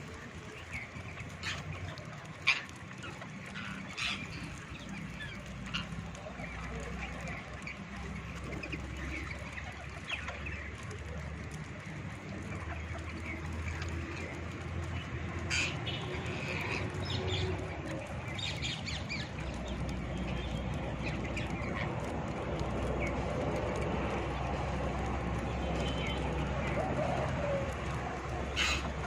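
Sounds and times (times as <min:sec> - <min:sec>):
parrots chirping and squawking: 0:00.7 - 0:06.2, 0:15.4 - 0:17.6, 0:18.3 - 0:20.4, 0:28.2 - 0:29.0.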